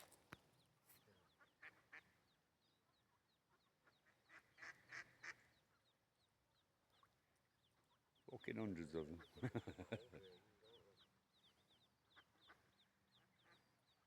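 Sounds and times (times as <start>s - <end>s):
ducks quacking: 3.6s - 5.7s, 8.4s - 11.1s.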